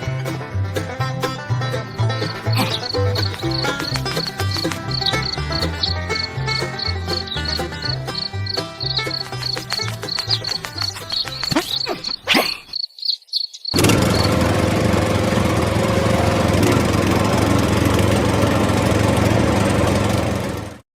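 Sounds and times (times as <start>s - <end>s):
rhythmic music with high chirps: 0.3s - 12.2s
small motor humming: 13.8s - 20.4s.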